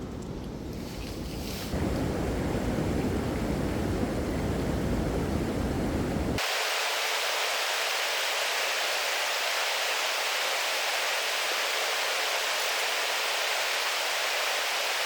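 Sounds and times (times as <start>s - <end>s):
waterfall rushing: 6.4s - 15.0s.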